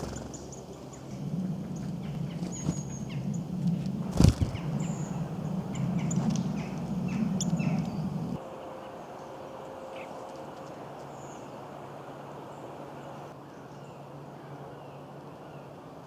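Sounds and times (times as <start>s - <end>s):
steady low hum: 0.0s - 9.9s
songbirds chirping: 0.0s - 10.2s.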